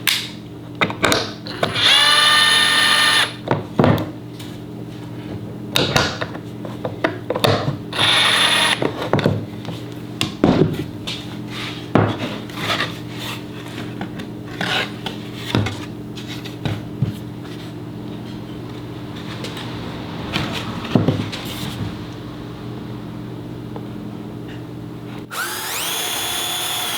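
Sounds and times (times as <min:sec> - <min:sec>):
power tool whir: 0:01.5 - 0:03.4, 0:07.9 - 0:08.9, 0:25.3 - 0:26.9.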